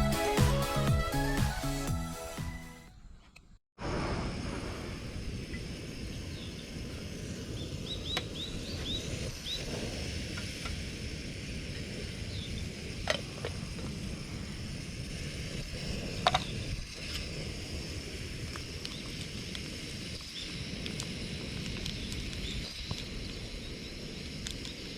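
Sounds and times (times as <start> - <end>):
steady low rumble: 3.8 - 24.3.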